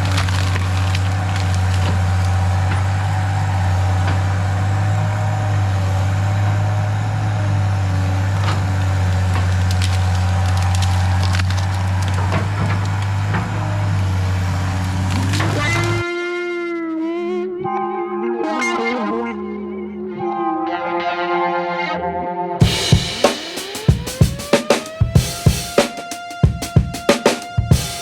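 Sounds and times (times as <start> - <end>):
wood cracking and splintering: 0.0 - 3.2, 8.7 - 16.0
excavator diesel engine running: 0.0 - 16.0.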